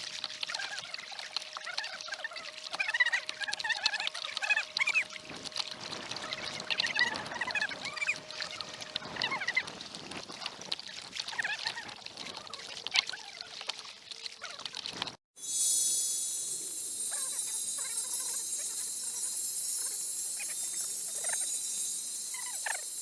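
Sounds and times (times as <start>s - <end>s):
paddle splashing water: 0.0s - 15.2s
high chirping squeaks: 15.4s - 23.0s
steady hiss: 15.4s - 23.0s.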